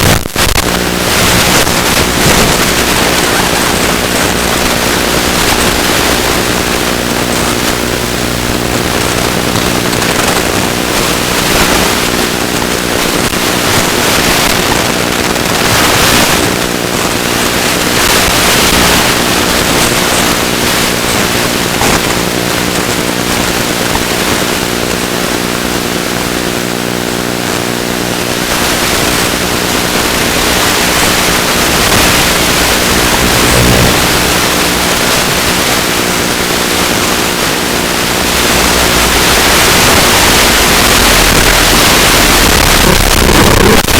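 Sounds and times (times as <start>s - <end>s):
wind rushing over microphone: 0.0s - 24.4s, 28.8s - 43.9s
electric motor and propeller droning: 29.6s - 42.5s.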